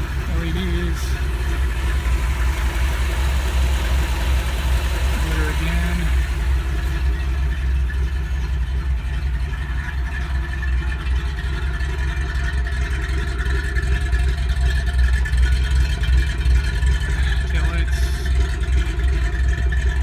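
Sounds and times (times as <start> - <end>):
engine running with exhaust pulse: 0.0 - 20.0.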